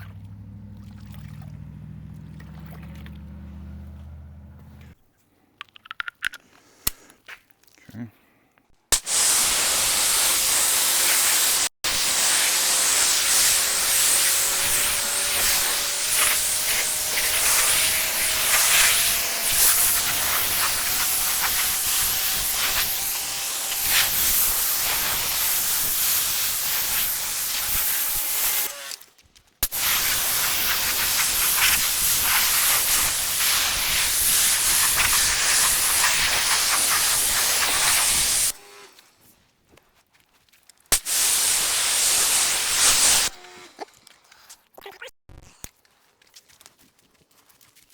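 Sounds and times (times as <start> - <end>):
water jet spraying into bucket: 8.9 - 29.0, 29.6 - 38.8, 40.9 - 43.7.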